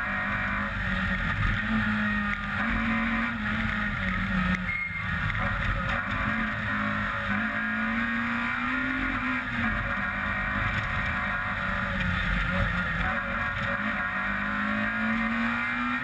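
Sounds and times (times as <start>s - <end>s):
rally car engine running hard: 0.0s - 16.0s.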